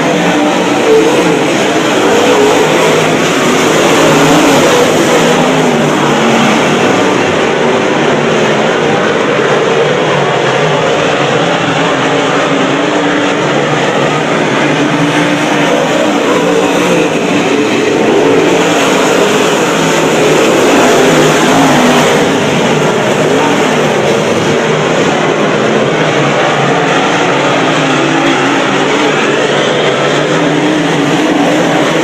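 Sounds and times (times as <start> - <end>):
race car engines at high revs: 0.0 - 32.0.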